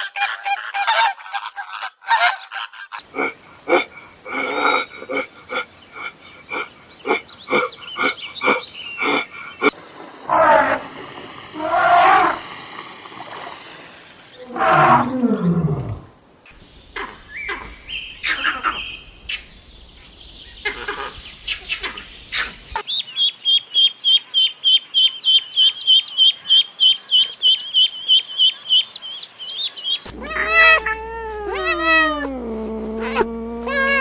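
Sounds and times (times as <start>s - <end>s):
cat meowing: 30.1s - 34.0s.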